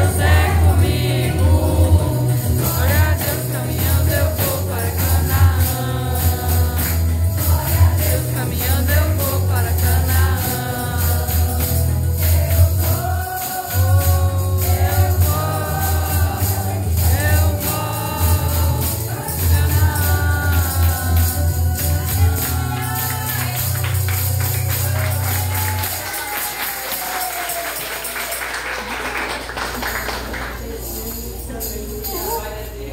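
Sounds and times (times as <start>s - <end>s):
heavy bass accompaniment: 0.0s - 25.8s
women's choir singing gospel: 0.0s - 26.1s
tambourine shaken in rhythm: 0.0s - 32.9s.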